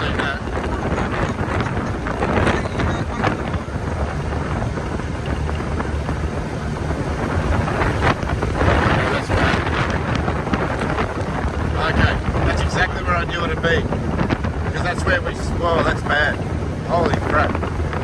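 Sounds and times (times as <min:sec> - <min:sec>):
low engine rumble: 0:00.0 - 0:18.0
wind buffeting microphone: 0:00.0 - 0:18.0.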